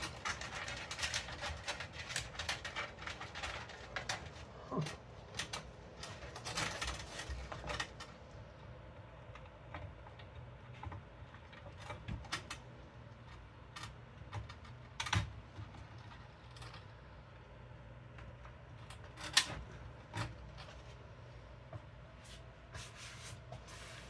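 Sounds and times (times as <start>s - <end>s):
cables rustling and scraping: 0.0s - 24.0s.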